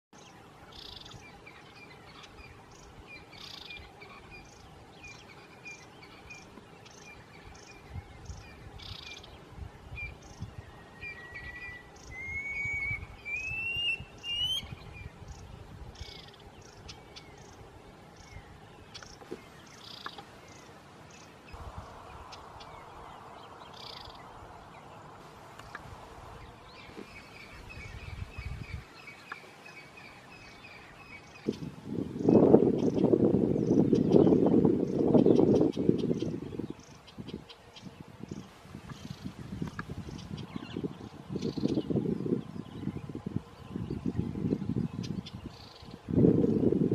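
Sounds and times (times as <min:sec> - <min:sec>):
soft hiss: 0:00.2 - 0:35.6
birds chirping: 0:00.2 - 0:46.9
low rumbles: 0:21.6 - 0:28.8.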